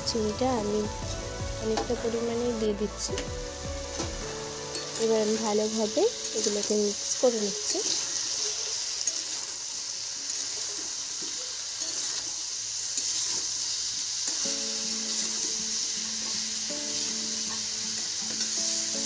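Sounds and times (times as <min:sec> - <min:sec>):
soft background music: 0:00.0 - 0:08.4, 0:14.1 - 0:19.0
vegetables sizzling in oil: 0:00.0 - 0:19.0
spatula stirring: 0:03.9 - 0:09.6.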